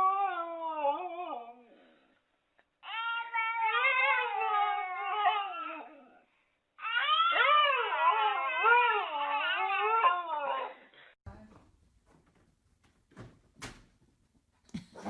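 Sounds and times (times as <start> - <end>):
dog howling: 0.0 - 1.7, 2.9 - 6.2, 6.8 - 10.8.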